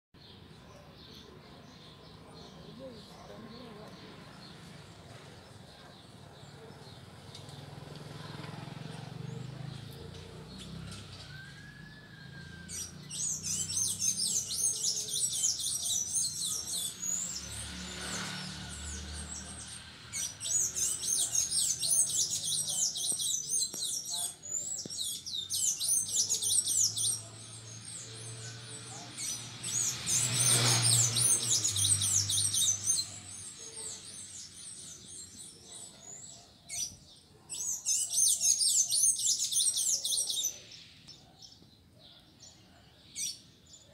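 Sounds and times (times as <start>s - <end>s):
small songbirds chirping: 0.2s - 43.9s.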